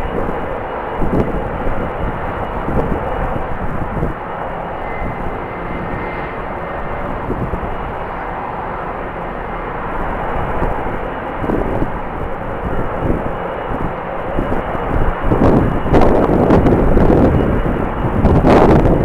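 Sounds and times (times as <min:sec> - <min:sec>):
faint high whine: 0:00.0 - 0:19.0
jet engines running: 0:00.0 - 0:19.0
wind buffeting microphone: 0:00.0 - 0:19.0.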